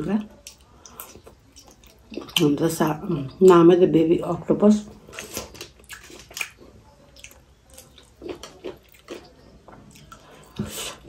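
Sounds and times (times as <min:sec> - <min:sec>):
person chewing with mouth sounds: 0:00.4 - 0:02.5, 0:05.0 - 0:11.0.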